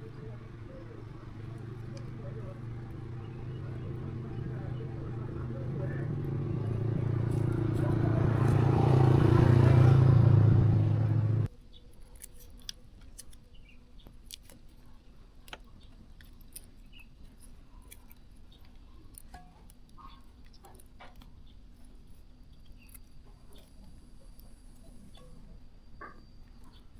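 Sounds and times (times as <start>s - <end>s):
small engine running: 0.0s - 11.5s.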